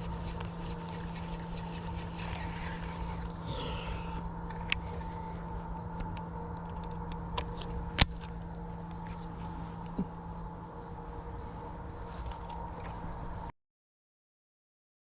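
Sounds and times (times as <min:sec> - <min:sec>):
crickets trilling: 0:00.0 - 0:13.5
steady low hum: 0:00.0 - 0:13.5.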